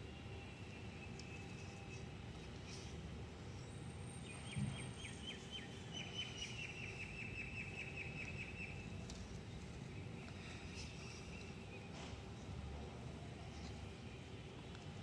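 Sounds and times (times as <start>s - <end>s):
low background hum: 0.0s - 15.0s
bird chirping: 3.5s - 9.0s.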